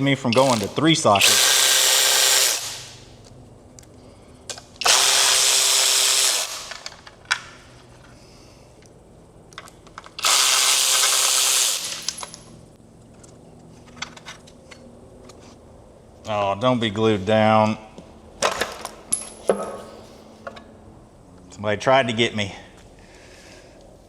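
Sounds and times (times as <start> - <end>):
cordless power tool spinning bolts: 0.3 - 3.0, 4.8 - 7.1, 10.0 - 12.4.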